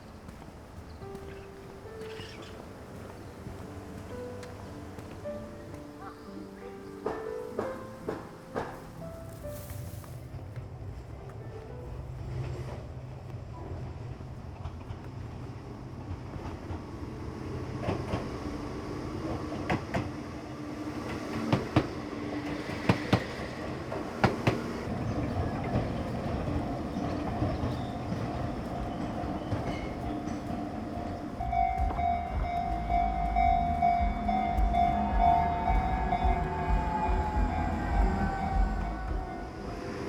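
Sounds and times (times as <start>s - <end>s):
train steady whine: 2.6s - 40.0s
train wheels clicking over rail joints: 7.0s - 9.3s, 21.0s - 40.0s.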